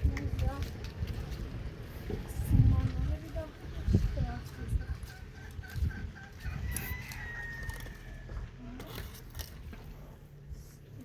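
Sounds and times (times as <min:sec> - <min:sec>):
clucking calls: 0:04.4 - 0:07.1
rooster crowing: 0:06.2 - 0:08.5.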